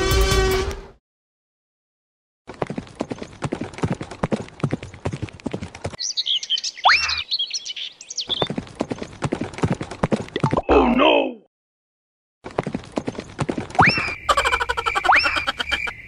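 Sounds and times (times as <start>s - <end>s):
clattering hoof-like footsteps: 2.5s - 6.0s, 8.3s - 10.5s, 12.4s - 14.2s
high bird-like chirps and whistles: 6.0s - 8.5s.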